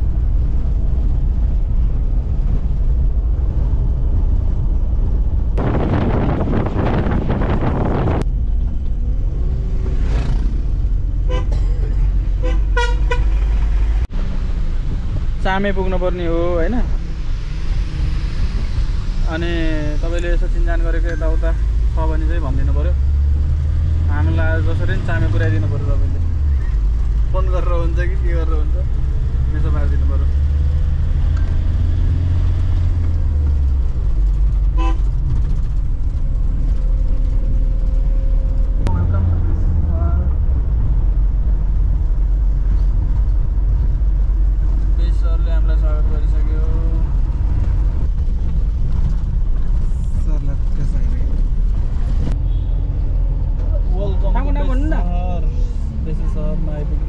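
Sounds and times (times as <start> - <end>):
low rumble of moving vehicle: 0.0 - 57.0
road noise: 0.0 - 57.0
vehicle horn tooting: 11.2 - 11.6, 12.4 - 13.4, 34.8 - 35.1, 52.4 - 52.8
short horn toot: 52.4 - 52.9.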